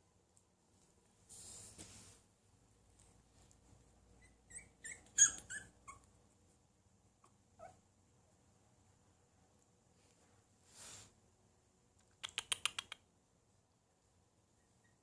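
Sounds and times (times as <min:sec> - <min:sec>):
faint puppy squeak: 0:03.0 - 0:06.1, 0:07.2 - 0:07.8, 0:14.4 - 0:15.0
puppy yipping and whimpering: 0:03.6 - 0:06.2, 0:07.2 - 0:07.8, 0:14.6 - 0:15.0.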